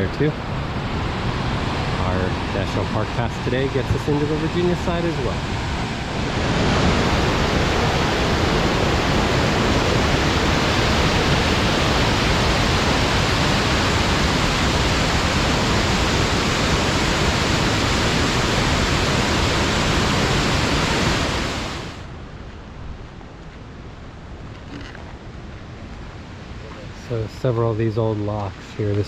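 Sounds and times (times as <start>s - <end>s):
whitewater rushing over falls: 0.0s - 22.1s.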